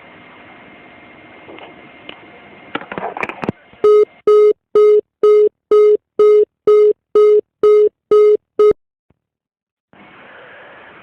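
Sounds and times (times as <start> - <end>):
telephone busy tone beeps: 3.9 - 8.8.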